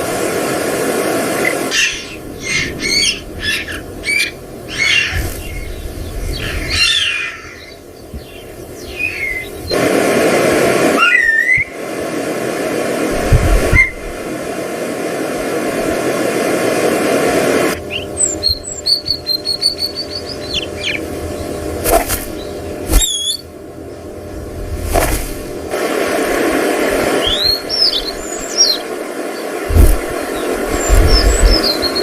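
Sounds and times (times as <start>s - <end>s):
steady rushing noise: 0.0s - 6.8s, 7.6s - 17.9s, 20.4s - 32.0s
birds chirping and whistling: 1.5s - 9.8s, 11.0s - 11.8s, 17.8s - 21.7s, 22.3s - 23.5s, 27.1s - 32.0s
sharp high bird calls: 1.7s - 5.7s, 6.3s - 9.6s, 23.0s - 23.5s.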